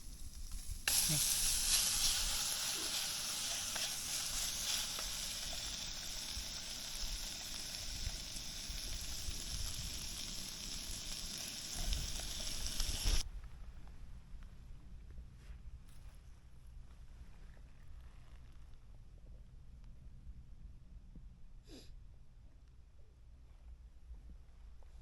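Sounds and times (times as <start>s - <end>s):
meat sizzling in a pan: 0.0s - 13.2s.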